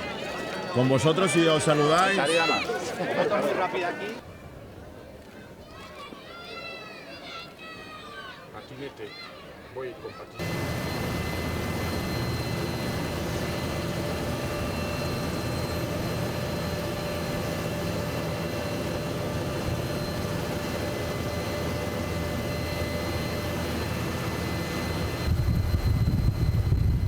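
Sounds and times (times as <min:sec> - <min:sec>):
helicopter engine and rotors: 0:10.3 - 0:27.0.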